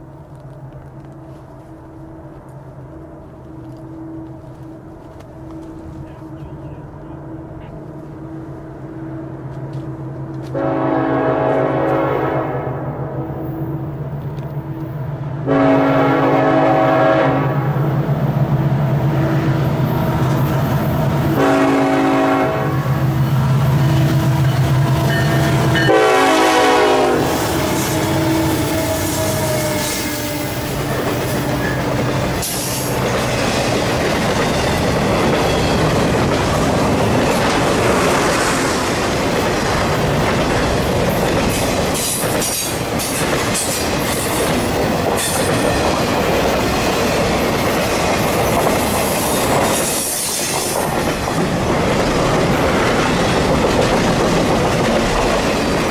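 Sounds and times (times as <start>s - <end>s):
locomotive air horn blasts: 10.4s - 13.3s, 15.4s - 17.8s, 21.3s - 30.7s
train wheels clattering on rails: 23.1s - 55.9s.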